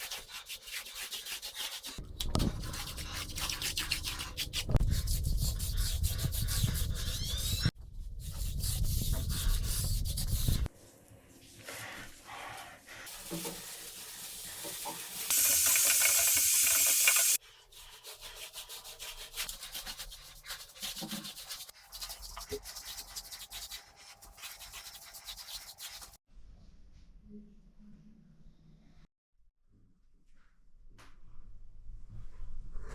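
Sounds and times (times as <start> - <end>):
brush scrubbing hard surface: 0.0 - 7.2, 11.4 - 26.2
steady hiss: 15.3 - 17.4.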